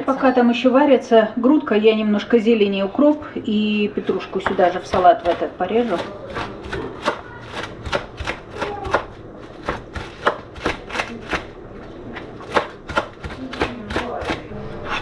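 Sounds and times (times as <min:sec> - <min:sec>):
knife chopping herbs on a board: 0:04.1 - 0:11.5, 0:12.4 - 0:15.0.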